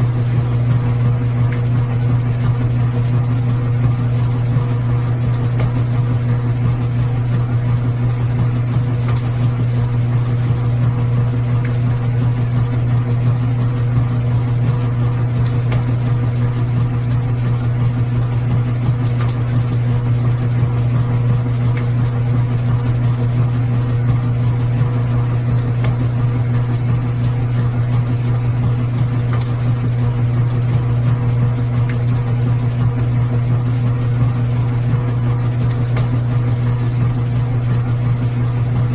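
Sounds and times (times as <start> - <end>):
washing machine humming: 0.0 - 38.9.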